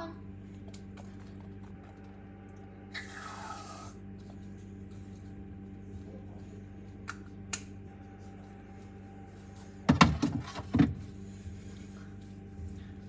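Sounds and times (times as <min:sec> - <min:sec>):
low hum: 0:00.0 - 0:13.0
containers knocking in a fridge: 0:09.9 - 0:11.1.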